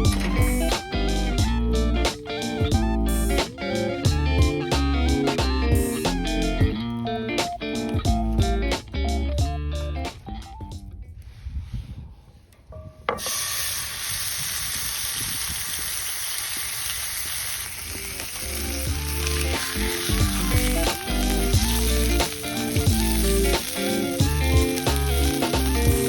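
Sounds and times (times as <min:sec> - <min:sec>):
steak sizzling: 0:00.0 - 0:06.7, 0:13.2 - 0:26.0.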